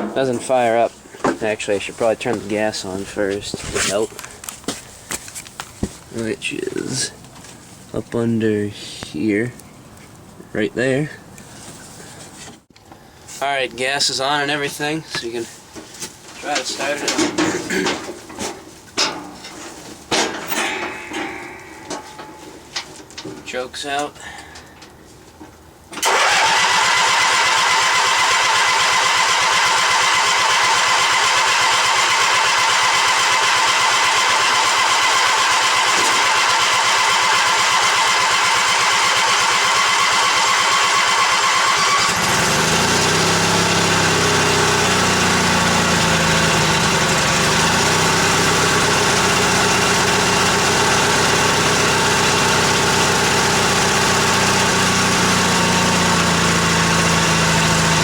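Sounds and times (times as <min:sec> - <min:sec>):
small engine running: 0:26.0 - 0:58.0
starter motor cranking: 0:26.0 - 0:58.0.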